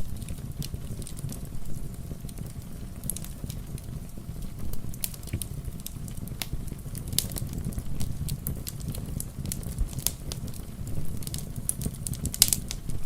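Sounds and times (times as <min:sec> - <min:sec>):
rain pattering: 0:00.0 - 0:13.0
wood fire crackling: 0:00.0 - 0:13.0.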